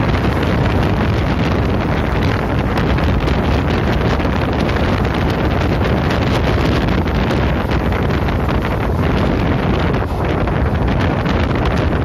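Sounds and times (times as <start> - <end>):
train rumbling on rails: 0.0 - 12.0
wind buffeting microphone: 0.0 - 12.0.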